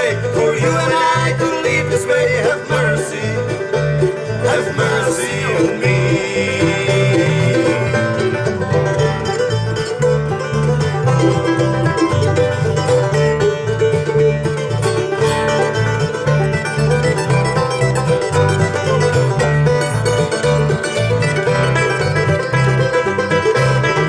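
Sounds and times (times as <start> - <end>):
acoustic guitar: 0.0 - 24.0
bass line: 0.0 - 24.0
plucked banjo: 0.0 - 24.0.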